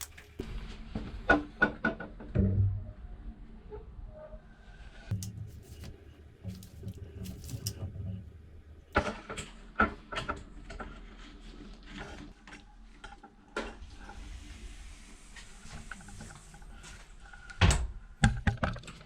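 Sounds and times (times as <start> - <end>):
handling clicks and rattles: 5.1 - 7.9.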